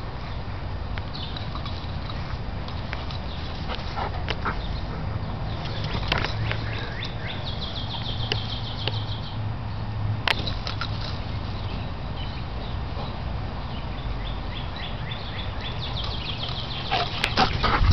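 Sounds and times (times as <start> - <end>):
bird singing a fast trill: 6.4 - 9.4, 13.7 - 17.0.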